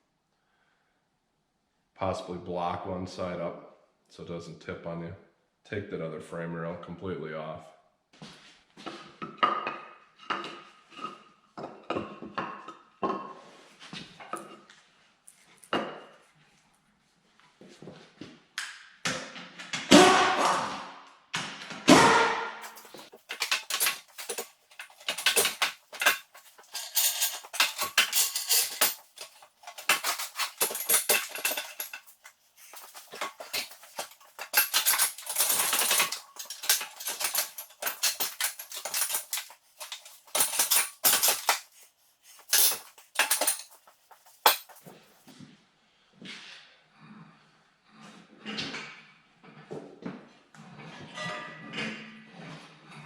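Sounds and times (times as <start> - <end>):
metallic tool clanks and knocks: 22.6 - 45.0.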